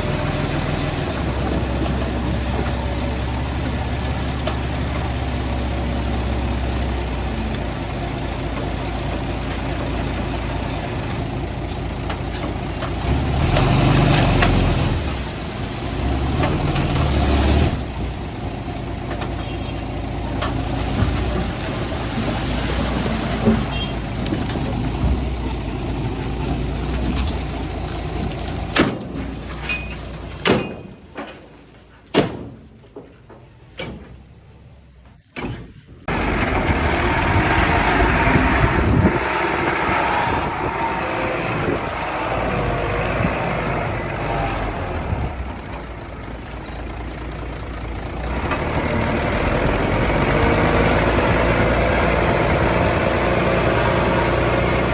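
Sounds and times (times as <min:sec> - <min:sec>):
heavy diesel engine running: 0:00.0 - 0:30.5, 0:36.0 - 0:54.9
sharp metal knocks: 0:28.8 - 0:31.4.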